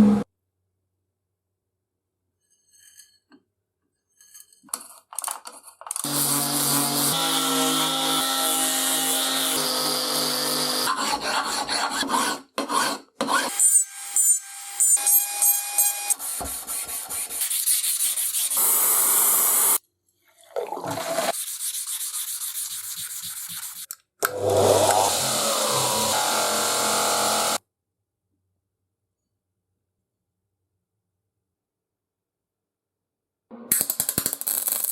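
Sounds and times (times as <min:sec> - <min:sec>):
tool motor hum: 0:24.2 - 0:27.6.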